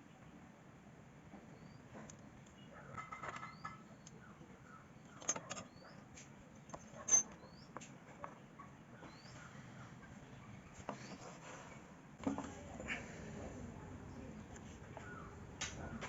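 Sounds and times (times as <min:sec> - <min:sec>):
small bird chirping: 0:01.5 - 0:01.9, 0:03.3 - 0:07.8, 0:08.6 - 0:11.3
metal tools clinking: 0:06.7 - 0:07.4.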